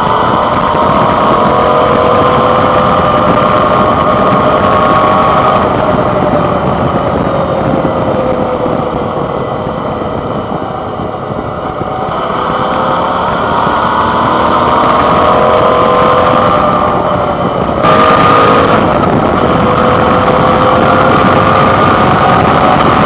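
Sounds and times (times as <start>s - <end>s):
motorcycle engine accelerating: 0.0s - 23.0s
wind rushing past: 0.0s - 23.0s.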